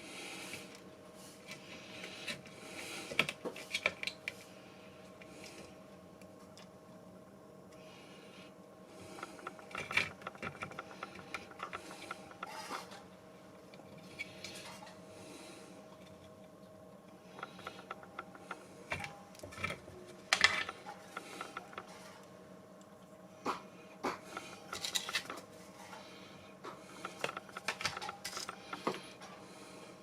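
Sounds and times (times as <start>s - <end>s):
faint steady hum: 0.0s - 30.0s
mechanical clicking and rattling: 9.0s - 13.0s, 17.3s - 22.3s, 24.1s - 25.5s, 26.7s - 29.1s.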